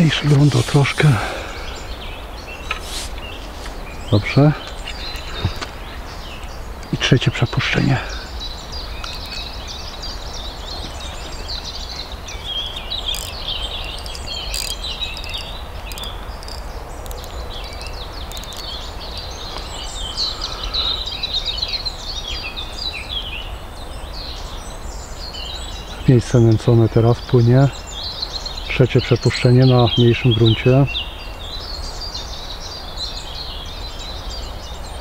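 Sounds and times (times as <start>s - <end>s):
small birds chirping: 0.0s - 35.0s
faint sharp clicks: 9.0s - 9.4s.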